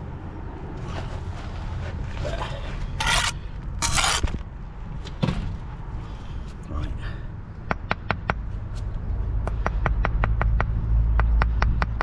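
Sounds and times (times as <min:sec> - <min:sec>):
trowel scraping mortar: 0:00.8 - 0:04.4.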